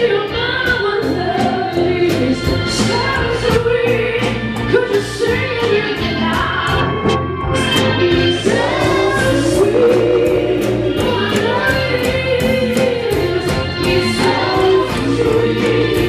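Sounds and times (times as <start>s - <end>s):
soul band playing: 0.0s - 16.0s
voices singing together: 7.8s - 16.0s
drum beat: 8.4s - 16.0s.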